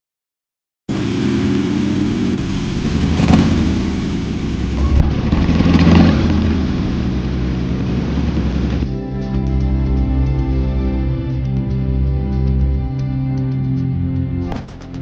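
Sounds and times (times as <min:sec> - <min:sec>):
motorcycle engine revving: 0:00.9 - 0:09.0.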